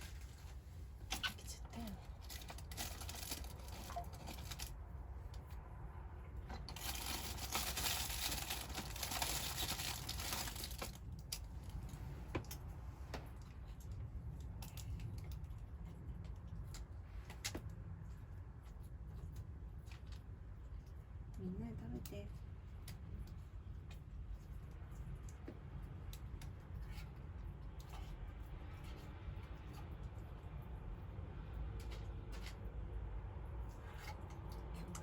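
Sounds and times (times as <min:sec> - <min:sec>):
bag rustling and crinkling: 0:02.1 - 0:04.8, 0:06.7 - 0:11.0.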